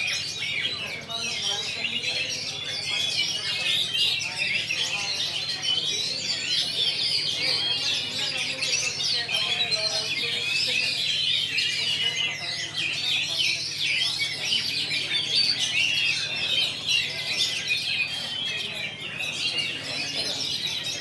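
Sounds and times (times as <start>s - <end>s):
birds chirping and whistling: 0.0s - 21.0s.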